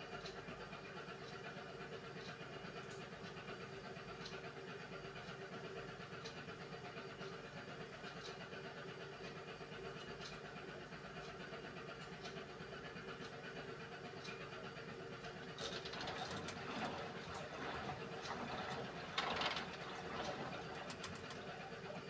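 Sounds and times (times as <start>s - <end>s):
washing machine motor hum: 15.3s - 22.0s.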